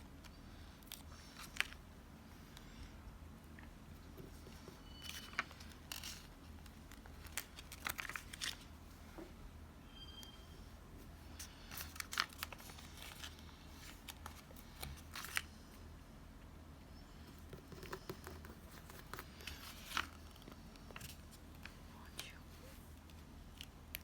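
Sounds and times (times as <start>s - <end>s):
paper crinkling: 0.9s - 1.8s, 4.3s - 8.8s, 11.3s - 15.6s, 17.5s - 22.3s.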